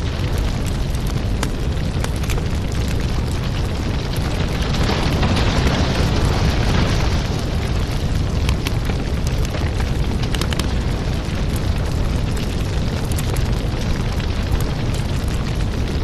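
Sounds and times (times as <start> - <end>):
wood fire burning: 0.0 - 16.0.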